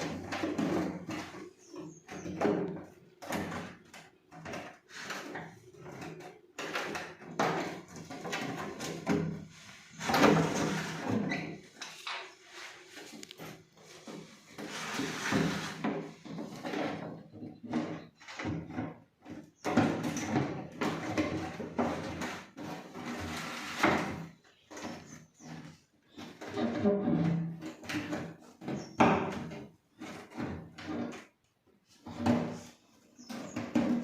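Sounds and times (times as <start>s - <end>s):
plastic parts clicking and knocking: 0.0s - 12.4s
plastic parts sliding scrapes: 0.0s - 34.0s.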